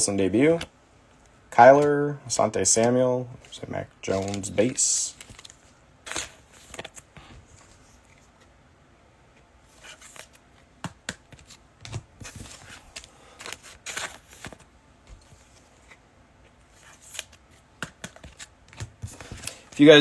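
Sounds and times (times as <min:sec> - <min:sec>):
trading cards being flipped: 0:02.8 - 0:08.2, 0:09.7 - 0:16.0, 0:16.7 - 0:20.0.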